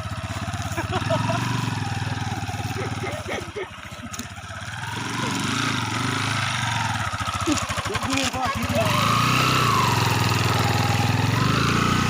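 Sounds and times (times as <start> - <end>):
motorcycle engine putter: 1.8 - 5.3, 7.0 - 8.8.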